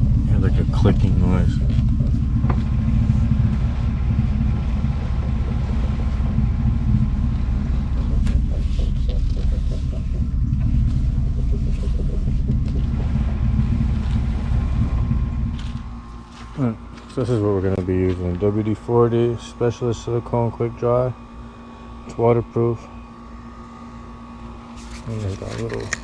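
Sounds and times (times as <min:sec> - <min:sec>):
truck engine idling: 0:00.0 - 0:22.0
suspension clicking and creaking: 0:00.8 - 0:16.5.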